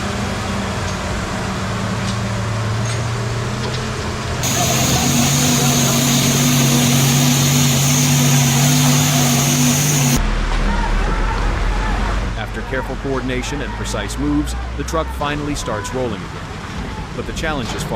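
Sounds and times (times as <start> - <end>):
steady hiss: 4.4 - 10.2
thin high whine: 4.4 - 10.2
truck engine idling: 4.4 - 10.2.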